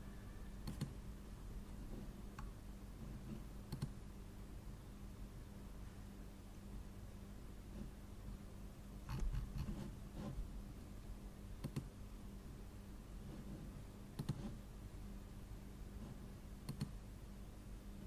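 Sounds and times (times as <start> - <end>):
low steady hum: 0.0 - 18.0
computer mouse clicking: 0.6 - 1.0, 3.7 - 4.0, 9.1 - 9.8, 11.6 - 11.9, 14.2 - 14.6, 16.6 - 17.0.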